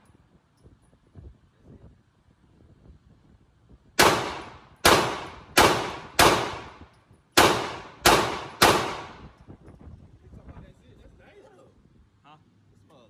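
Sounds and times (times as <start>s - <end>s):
gunshots: 4.0s - 6.8s, 7.4s - 9.3s.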